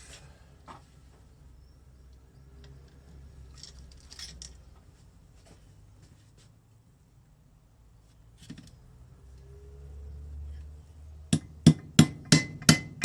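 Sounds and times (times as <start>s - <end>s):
metal tools clinking: 3.5s - 4.7s.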